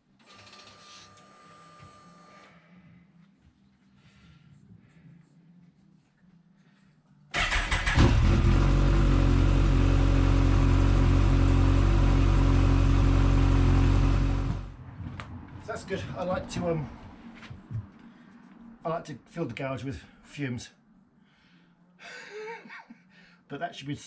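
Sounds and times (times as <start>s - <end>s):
motorcycle engine starting: 7.3s - 14.8s.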